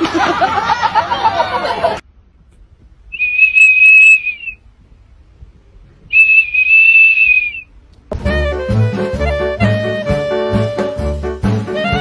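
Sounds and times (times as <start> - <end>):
dog blowing plastic whistle: 3.2 - 4.6, 6.1 - 7.7
music with saxophone: 8.1 - 12.0.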